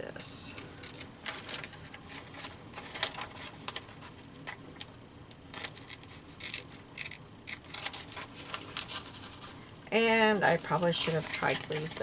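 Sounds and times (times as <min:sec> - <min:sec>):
scissors snipping paper: 0:05.5 - 0:08.9.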